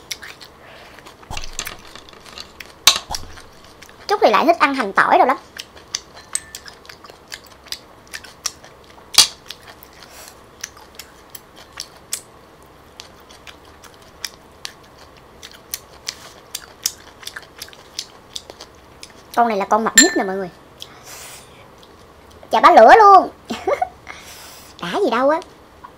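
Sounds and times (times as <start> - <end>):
chewing food: 0.0 - 4.3, 5.3 - 19.4.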